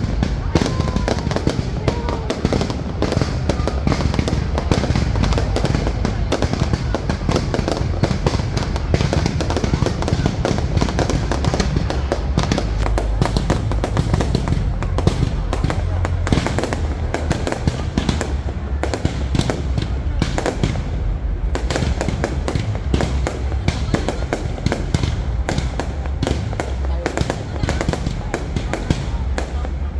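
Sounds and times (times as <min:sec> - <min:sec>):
fireworks bangs and crackles: 0:00.0 - 0:29.9.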